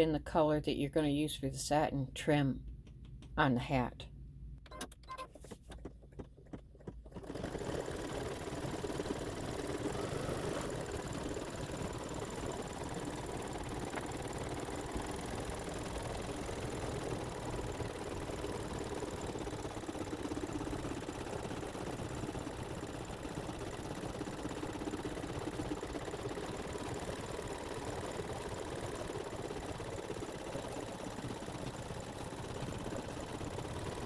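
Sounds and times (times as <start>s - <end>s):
embroidery machine stitching: 6.8s - 34.0s.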